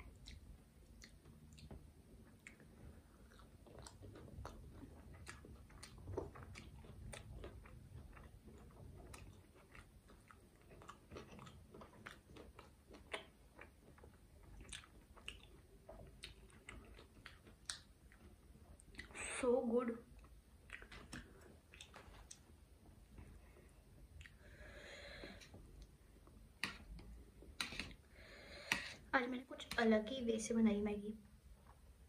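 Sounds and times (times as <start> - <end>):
close chewing with wet mouth clicks: 0.0 - 19.3, 20.1 - 22.6, 24.1 - 24.6
food crunching: 2.3 - 19.2, 20.2 - 22.6.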